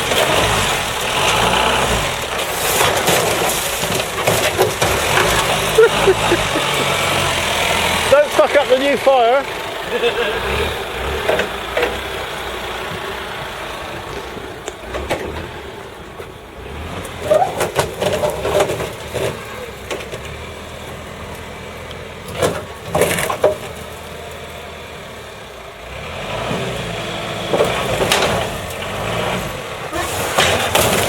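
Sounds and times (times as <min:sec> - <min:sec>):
engine running: 0:00.0 - 0:31.0
sharp knocks and clatters: 0:02.2 - 0:08.6, 0:17.0 - 0:20.4, 0:22.3 - 0:23.9.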